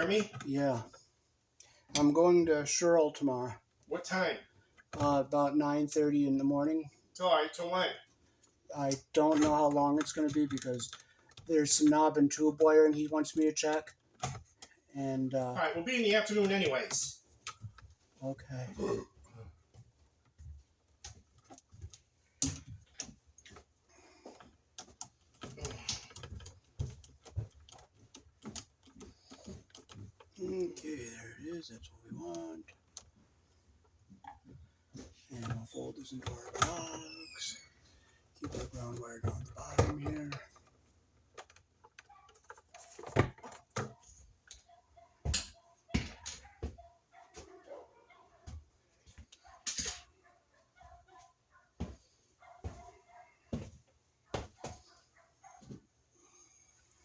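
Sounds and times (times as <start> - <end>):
wires and hand tools clicking: 8.4 - 15.6, 19.6 - 47.6, 48.4 - 51.5
wires clicking into outlet box: 49.4 - 50.1.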